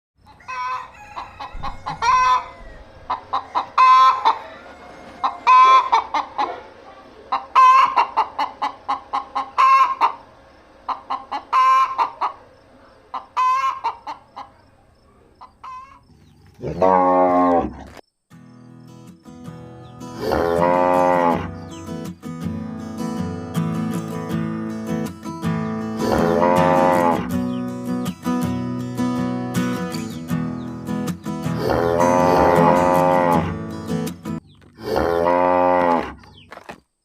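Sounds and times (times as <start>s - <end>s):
chickens clucking: 0.2s - 16.7s
cow mooing: 16.6s - 17.9s, 20.1s - 21.6s, 25.9s - 27.3s, 31.5s - 33.7s, 34.8s - 36.2s.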